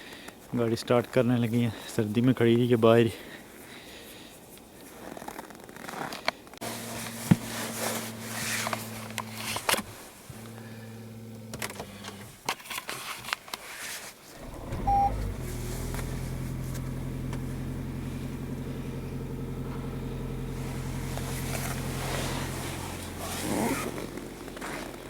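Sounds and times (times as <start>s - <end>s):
car engine idling: 6.6s - 12.4s, 14.4s - 25.0s
engine cranking: 6.6s - 12.5s, 14.4s - 25.0s
short beep: 14.8s - 15.2s.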